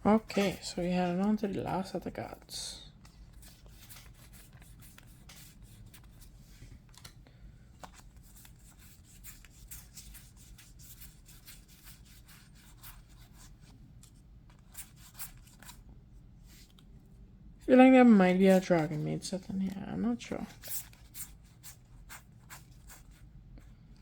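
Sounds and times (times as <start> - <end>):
faint steady hum: 0.0 - 24.0
cards rustling and clicking: 2.9 - 15.9.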